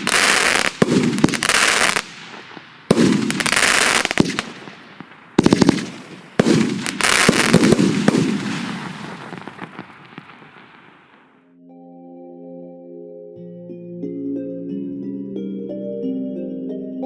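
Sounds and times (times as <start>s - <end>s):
fireworks bangs: 0.0s - 11.3s
fireworks crackling: 0.0s - 11.4s
soft sustained musical tones: 11.4s - 17.0s.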